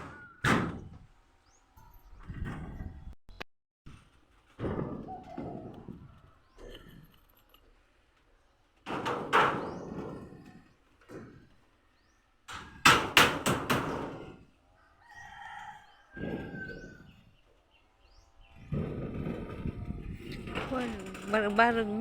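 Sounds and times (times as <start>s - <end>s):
hammering on wood: 12.5s - 14.2s
rooster crowing: 14.8s - 17.1s.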